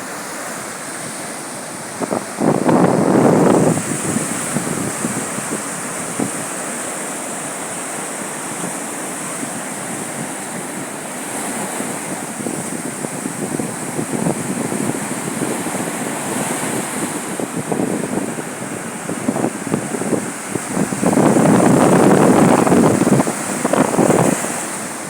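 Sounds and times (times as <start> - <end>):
surf washing onto beach: 0.0 - 25.0
wind buffeting microphone: 1.1 - 6.8, 8.6 - 25.0.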